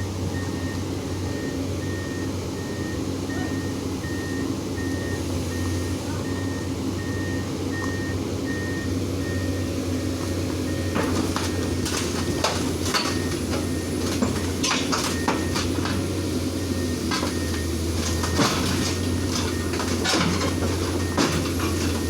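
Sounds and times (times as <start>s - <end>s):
excavator diesel engine: 0.0s - 22.0s
metallic clanks and knocks: 18.0s - 22.0s.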